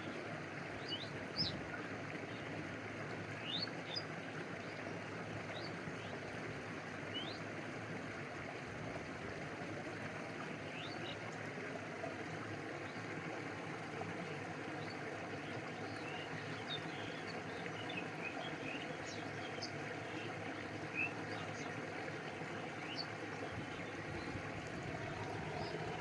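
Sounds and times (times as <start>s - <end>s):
stream flowing: 0.0s - 26.0s
water lapping: 7.1s - 26.0s.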